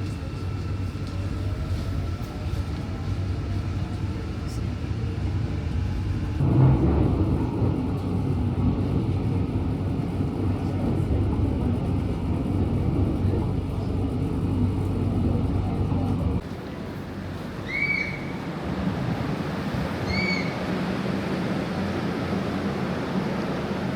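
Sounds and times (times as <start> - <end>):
moving vehicle rumble: 0.0 - 23.9.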